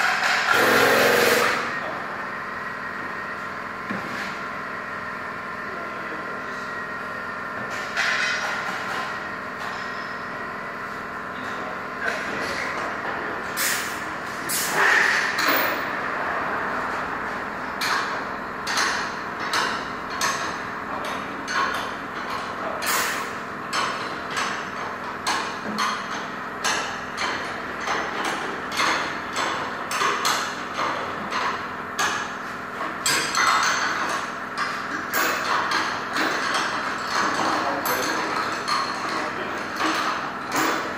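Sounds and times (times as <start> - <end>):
machine hum: 0.2 - 2.0.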